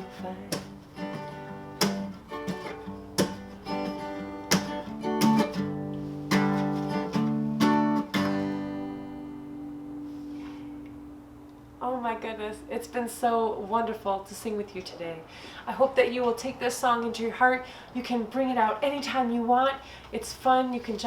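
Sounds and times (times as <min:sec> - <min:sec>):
acoustic guitar strumming: 0:00.0 - 0:14.1.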